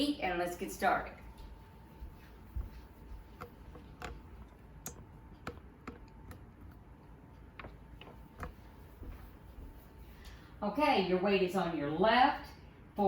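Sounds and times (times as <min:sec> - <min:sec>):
faint steady hum: 0:00.0 - 0:13.0
light clicks and taps: 0:02.6 - 0:09.2.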